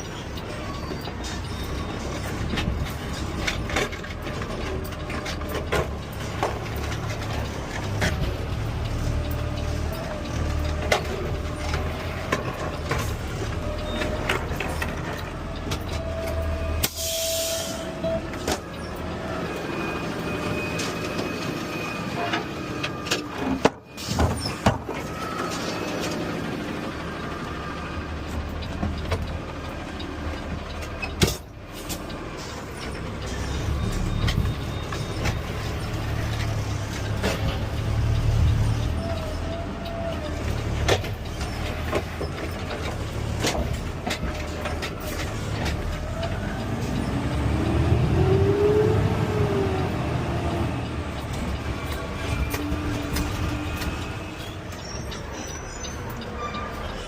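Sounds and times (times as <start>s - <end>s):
air brake hiss: 16.8s - 18.0s
garbage truck engine running: 17.9s - 57.0s.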